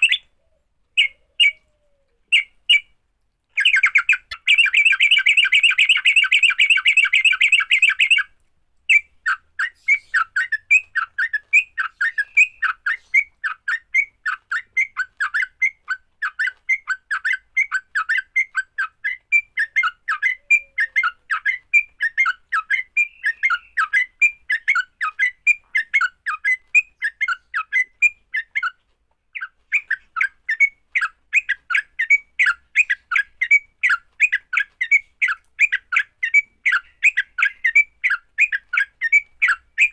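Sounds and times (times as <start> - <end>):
bird chattering call: 0.0 - 0.3, 3.6 - 8.2.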